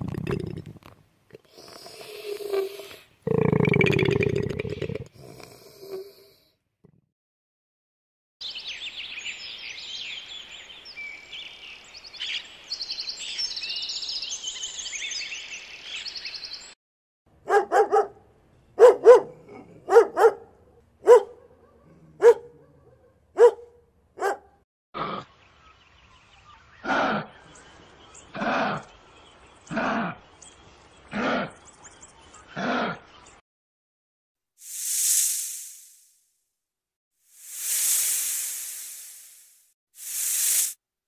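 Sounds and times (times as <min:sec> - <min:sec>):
birds chirping and twittering: 0:08.4 - 0:16.8, 0:25.3 - 0:33.4
dog barking: 0:17.4 - 0:18.2, 0:18.8 - 0:24.6.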